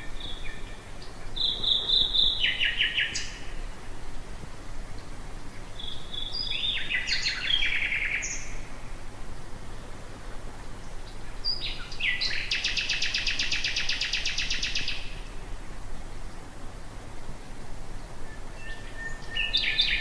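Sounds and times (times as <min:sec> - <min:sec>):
nightingale singing: 0:00.0 - 0:03.8, 0:05.7 - 0:08.8, 0:10.8 - 0:15.4, 0:18.1 - 0:20.0.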